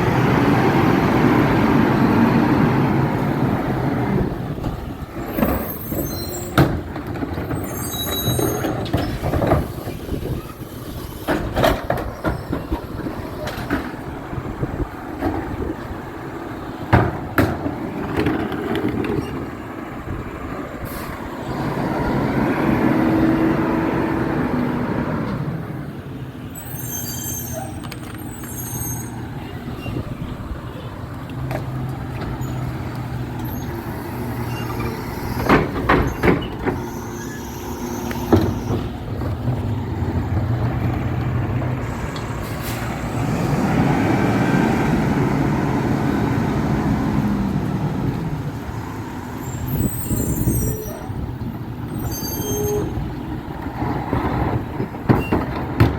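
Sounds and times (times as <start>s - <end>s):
brief high squeaks: 5.3s - 6.6s, 7.5s - 11.2s, 26.6s - 30.3s, 33.4s - 38.9s, 49.4s - 51.3s, 51.9s - 53.1s.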